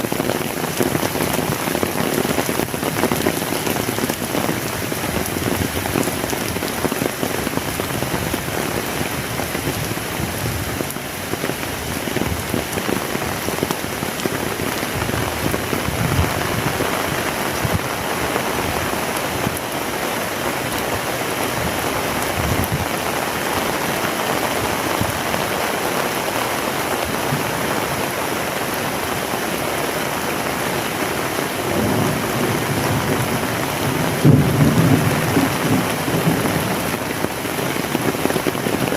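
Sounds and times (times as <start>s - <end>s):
heavy rain pouring: 0.0s - 38.9s
low rumble of thunder: 31.7s - 37.0s.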